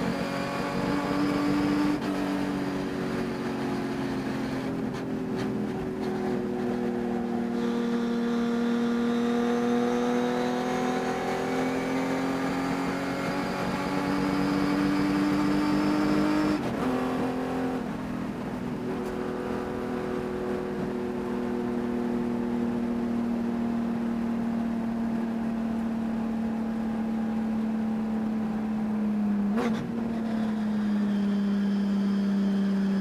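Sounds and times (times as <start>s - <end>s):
race car engine revving: 0.0s - 19.8s.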